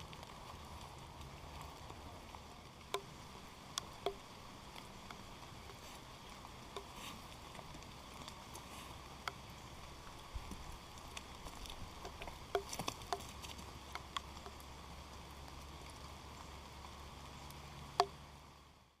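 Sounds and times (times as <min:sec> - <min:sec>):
rain pattering: 0:00.0 - 0:19.0
sharp drops ticking close by: 0:02.8 - 0:05.8.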